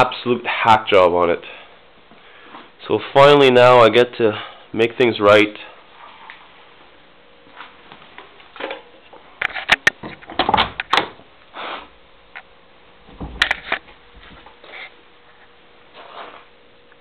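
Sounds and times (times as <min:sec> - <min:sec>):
sharp clicks and knocks: 0:09.4 - 0:11.2, 0:13.1 - 0:14.5.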